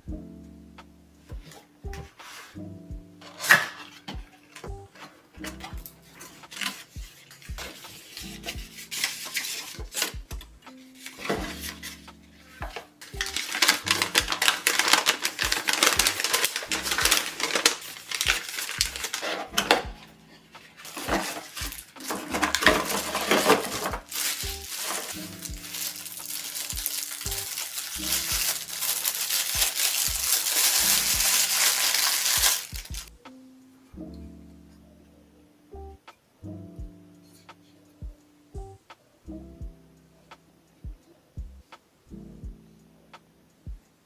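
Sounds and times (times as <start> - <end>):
quiet background music: 0.0 - 44.0
packaging rustling and crinkling: 3.2 - 33.1.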